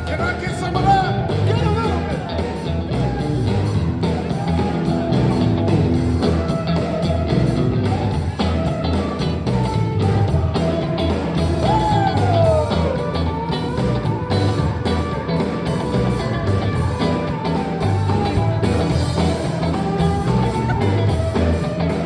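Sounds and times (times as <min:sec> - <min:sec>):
bass: 0:00.0 - 0:22.0
drums with steady beat: 0:00.0 - 0:22.0.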